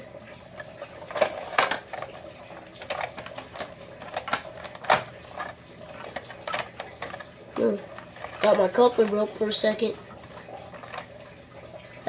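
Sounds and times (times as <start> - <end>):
plastic toy clicking: 2.8 - 5.5.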